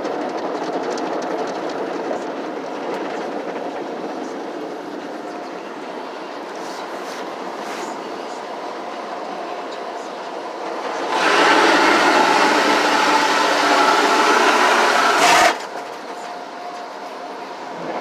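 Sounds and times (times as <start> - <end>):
car wash rushing noise: 10.8 - 16.0.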